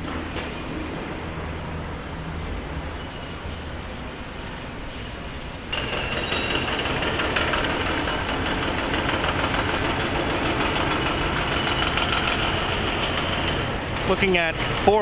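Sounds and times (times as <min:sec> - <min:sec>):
faint high whine: 0:00.3 - 0:06.7
engine running: 0:05.7 - 0:15.0.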